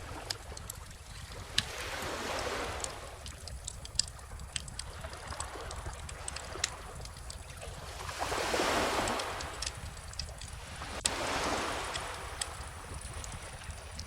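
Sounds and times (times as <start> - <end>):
bonfire crackling and popping: 0.0 - 14.0
ocean surf: 1.5 - 4.1, 7.9 - 14.0.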